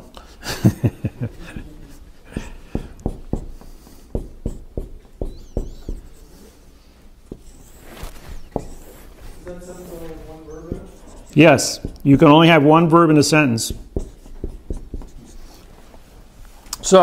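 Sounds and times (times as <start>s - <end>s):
marker writing on whiteboard: 2.0s - 6.6s, 7.2s - 15.8s.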